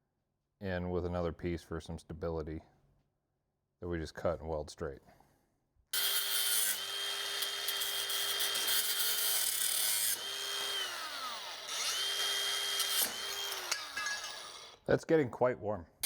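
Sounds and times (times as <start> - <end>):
angle grinder cutting steel: 6.0 - 14.8.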